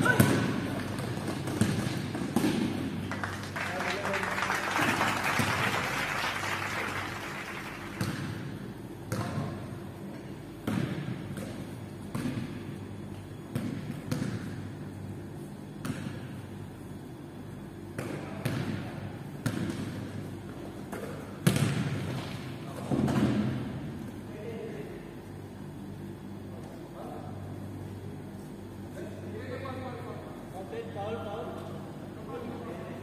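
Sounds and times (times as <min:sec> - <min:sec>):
basketball bouncing in gym: 0:00.0 - 0:03.0, 0:08.0 - 0:14.9, 0:15.8 - 0:16.5, 0:17.9 - 0:23.8.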